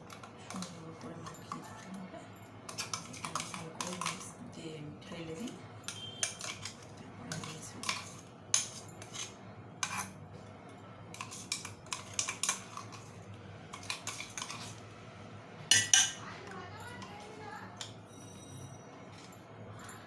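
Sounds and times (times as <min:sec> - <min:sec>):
metal spoon clinking on dish: 0:00.0 - 0:02.0, 0:02.7 - 0:04.4, 0:05.3 - 0:10.2, 0:11.1 - 0:14.8, 0:15.7 - 0:16.2.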